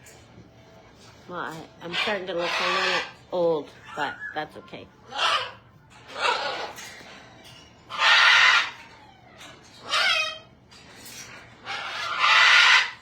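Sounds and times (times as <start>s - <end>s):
parrot squawking: 1.8s - 3.2s, 3.8s - 6.9s, 7.9s - 10.5s, 11.4s - 13.0s.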